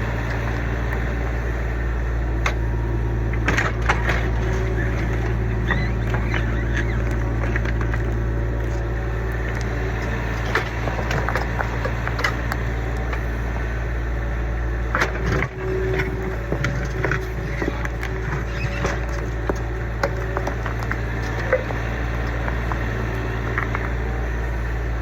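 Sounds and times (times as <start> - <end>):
excavator diesel engine running: 0.0 - 25.0
debris cracking and crunching: 15.0 - 24.2.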